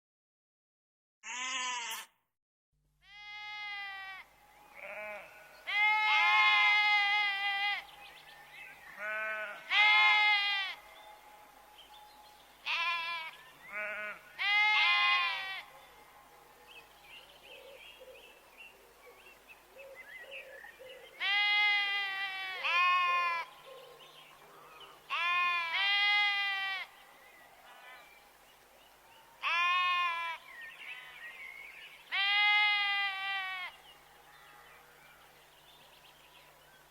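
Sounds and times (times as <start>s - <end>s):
sheep bleating: 1.3s - 2.1s, 3.0s - 7.8s, 9.0s - 10.9s, 12.6s - 15.7s, 21.2s - 23.5s, 25.1s - 26.9s, 29.4s - 30.4s, 32.1s - 33.8s.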